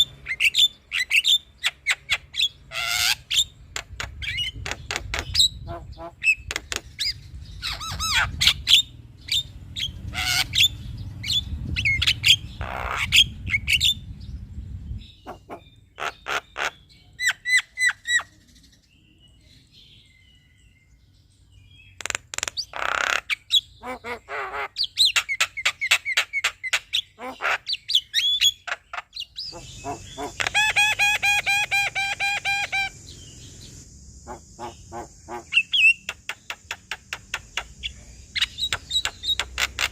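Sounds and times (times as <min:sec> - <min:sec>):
bird whistles clicks and squawks: 0:22.0 - 0:23.4, 0:35.5 - 0:39.9.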